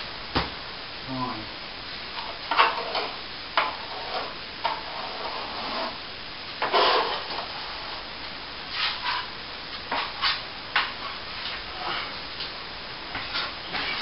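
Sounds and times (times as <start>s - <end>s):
plastering tool scraping plaster: 2.5s - 6.0s, 6.6s - 8.0s.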